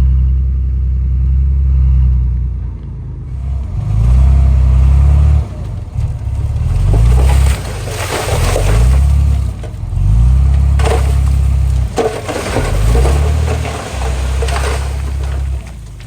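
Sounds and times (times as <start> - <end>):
bulldozer diesel engine revving: 0.0 - 16.0
stone and soil crunching: 3.3 - 16.0.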